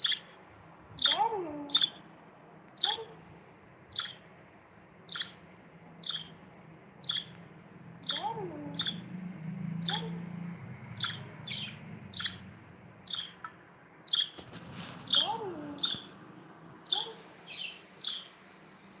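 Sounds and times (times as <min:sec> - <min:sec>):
budgerigar chirping: 0:00.0 - 0:00.4, 0:01.0 - 0:02.0, 0:02.8 - 0:03.1, 0:03.9 - 0:04.2, 0:05.1 - 0:06.4, 0:07.0 - 0:07.4, 0:08.0 - 0:09.1, 0:09.8 - 0:10.2, 0:11.0 - 0:14.4, 0:15.1 - 0:16.1, 0:16.9 - 0:18.4.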